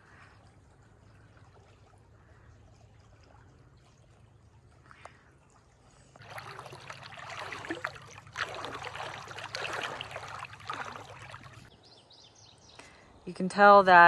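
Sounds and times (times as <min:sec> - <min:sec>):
creek water splashing over rocks: 0:06.2 - 0:11.7.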